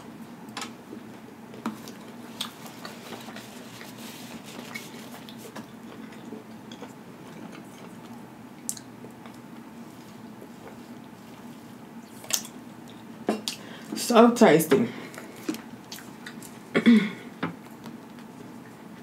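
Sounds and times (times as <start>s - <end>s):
steady low hum: 0.0s - 19.0s
wet mouth clicks and smacks: 8.6s - 8.9s.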